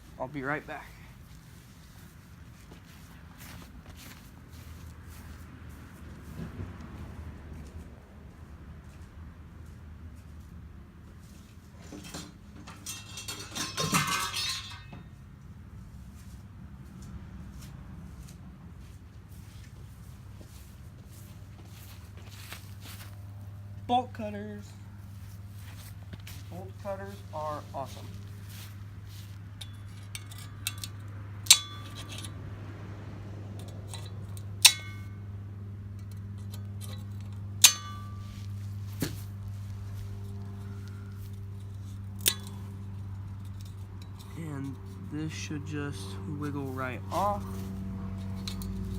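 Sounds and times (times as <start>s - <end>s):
steady low hum: 0.0s - 48.9s
metal tools clinking: 11.8s - 15.2s, 25.6s - 32.4s, 35.9s - 48.9s
metal ringing: 11.9s - 15.2s, 29.5s - 32.4s, 33.6s - 45.0s
bolt cutters snapping metal: 42.1s - 42.7s.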